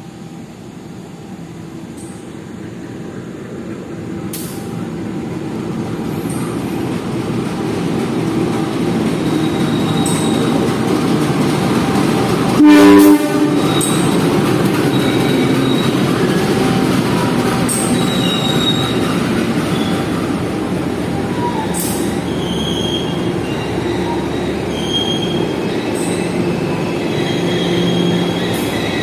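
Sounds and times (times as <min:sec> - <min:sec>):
train rumble: 0:00.0 - 0:29.0
wheel squeals: 0:09.1 - 0:10.8, 0:13.5 - 0:20.2, 0:21.0 - 0:29.0
locomotive horn blast: 0:12.6 - 0:14.1.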